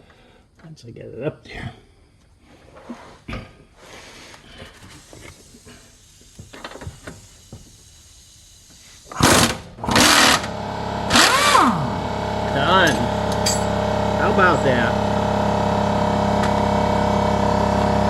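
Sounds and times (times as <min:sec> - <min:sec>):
impact wrench bursts: 0:04.6 - 0:18.0
tools clicking and knocking: 0:12.9 - 0:13.7.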